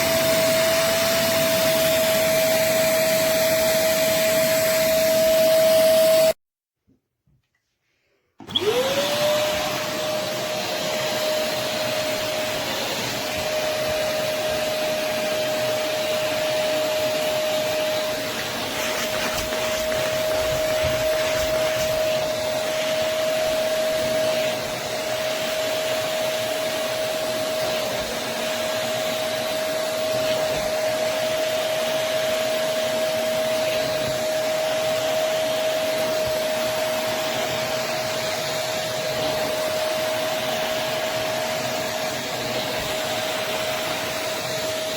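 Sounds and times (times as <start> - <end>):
suction motor whining: 8.4 - 31.4.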